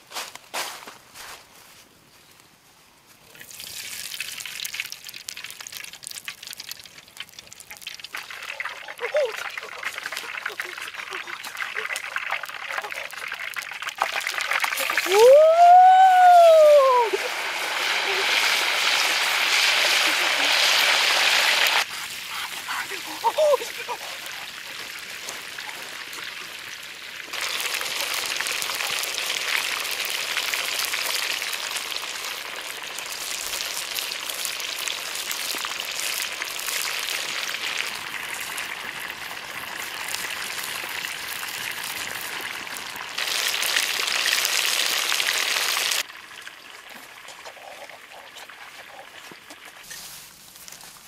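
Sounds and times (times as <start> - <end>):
chicken frying in hot oil: 3.4 - 50.0.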